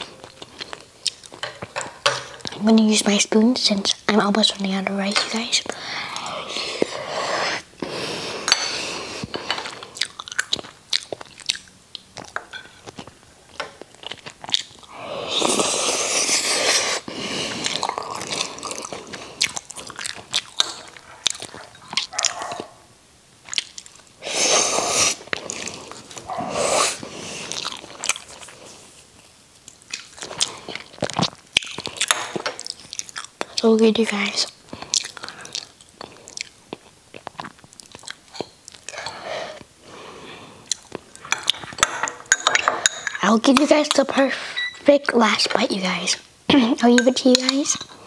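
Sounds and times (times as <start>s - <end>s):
chewing mouth sounds: 9.3s - 22.7s, 23.4s - 24.1s, 24.9s - 28.8s, 29.6s - 33.7s, 34.4s - 39.7s, 40.6s - 41.8s.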